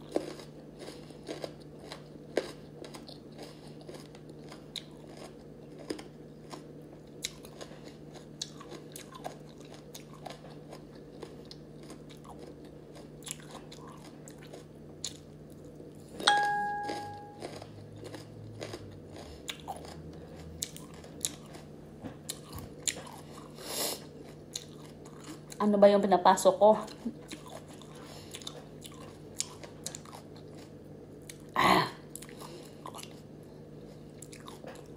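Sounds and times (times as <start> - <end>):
chewing and crunching raw fruit: 0.0 - 25.8, 26.7 - 34.9
short ringing tone: 16.2 - 17.5.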